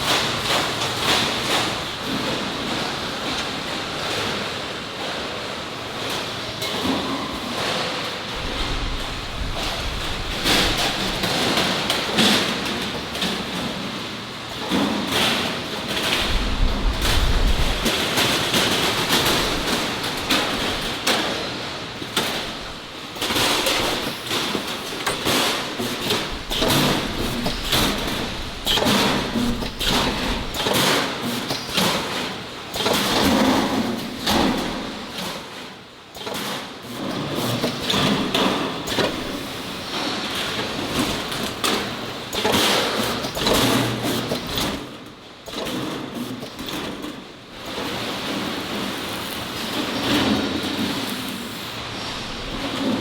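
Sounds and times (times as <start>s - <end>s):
steady noisy background: 0.0s - 53.0s
knocks clatter and scraping: 14.6s - 53.0s.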